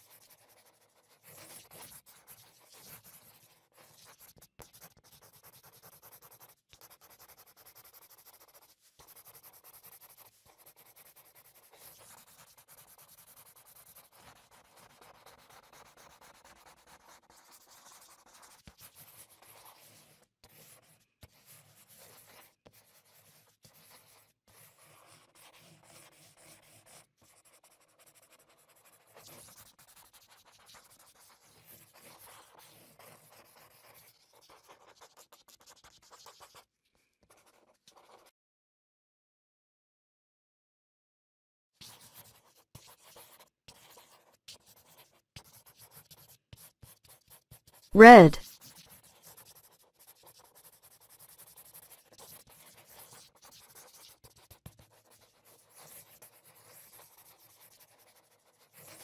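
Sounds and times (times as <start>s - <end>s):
paintbrush rubbing on paper: 0.0s - 36.6s.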